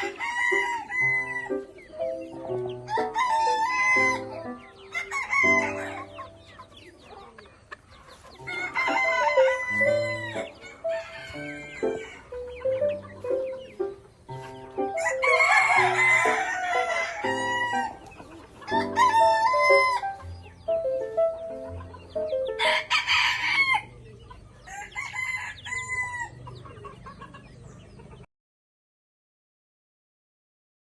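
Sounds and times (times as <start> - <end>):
background music: 0.0 - 7.0, 8.4 - 23.8
chickens calling: 0.0 - 28.3.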